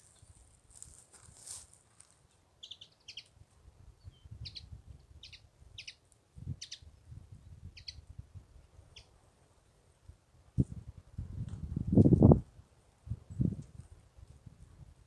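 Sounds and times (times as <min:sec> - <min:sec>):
songbird chirping: 0:02.2 - 0:03.4, 0:04.0 - 0:07.0, 0:07.6 - 0:08.0.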